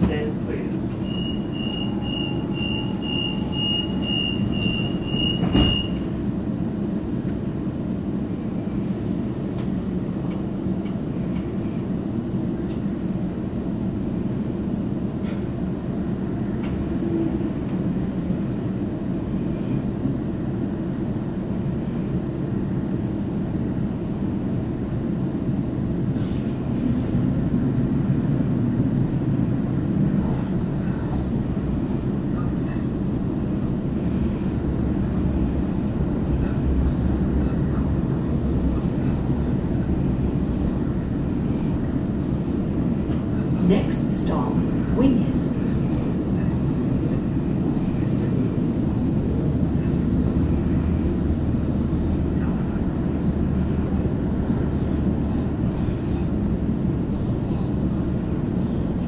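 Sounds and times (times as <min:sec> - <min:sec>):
train running rumble: 0:00.0 - 0:59.0
rapid high door warning beeps: 0:01.0 - 0:06.0.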